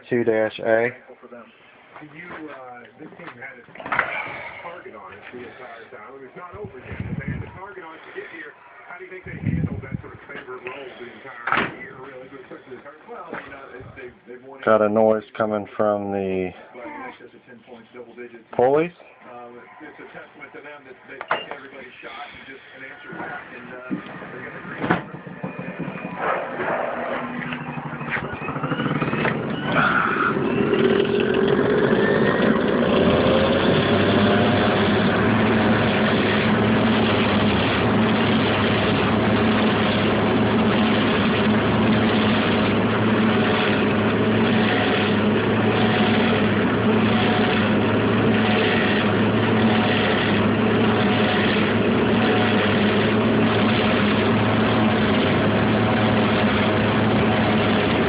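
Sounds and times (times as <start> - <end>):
clothes dryer motor running: 23.1 - 58.0.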